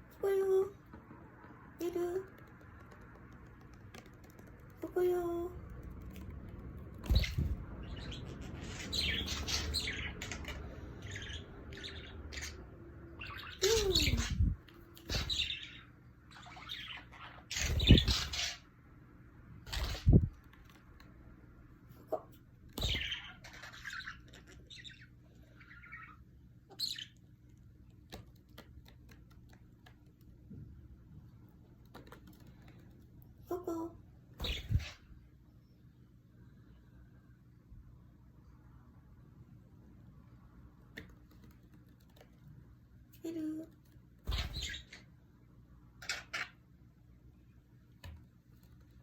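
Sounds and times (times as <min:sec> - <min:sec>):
budgerigar chirping: 0:07.2 - 0:12.6.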